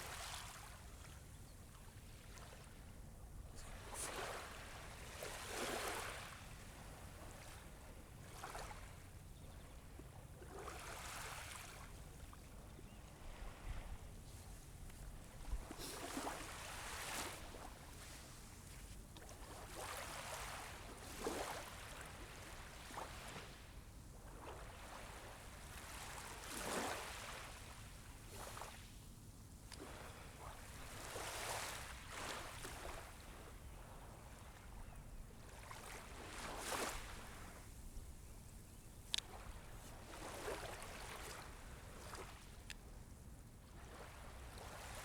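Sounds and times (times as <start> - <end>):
small waves washing onto sand: 13.0 - 23.7, 29.8 - 34.7, 35.4 - 37.8, 39.1 - 42.6.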